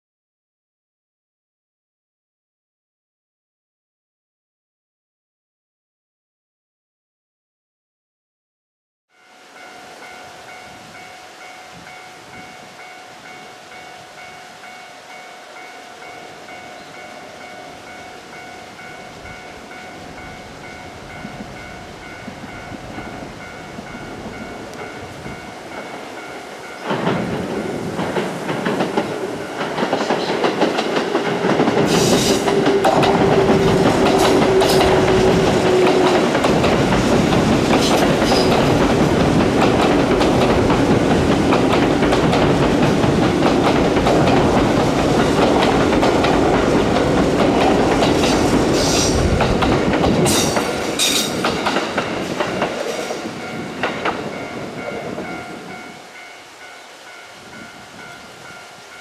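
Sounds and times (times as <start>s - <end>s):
electric train passing: 9.1s - 59.0s
wheels clicking over rail joints: 26.8s - 55.3s.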